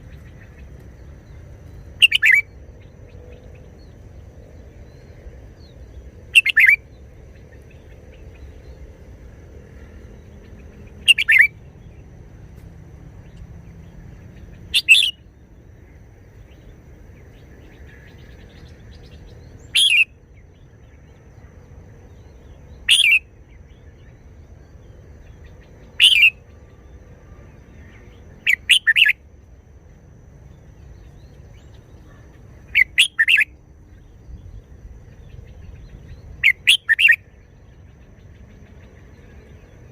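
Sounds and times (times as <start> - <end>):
bulbul singing: 0.0 - 4.0, 4.9 - 8.8, 10.4 - 12.0, 13.2 - 21.2, 22.1 - 26.6, 27.9 - 29.2, 30.5 - 39.9.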